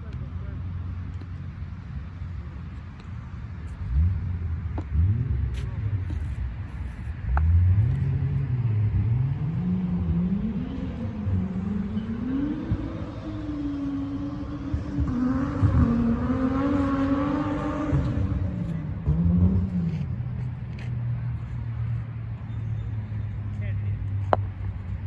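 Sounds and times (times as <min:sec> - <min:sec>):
vehicle engine speeding up: 0:07.2 - 0:21.2.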